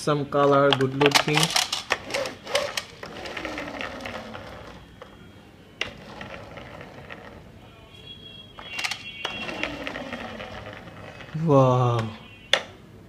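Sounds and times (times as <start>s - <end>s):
plastic toy rattling: 0.7s - 4.8s, 8.8s - 11.4s.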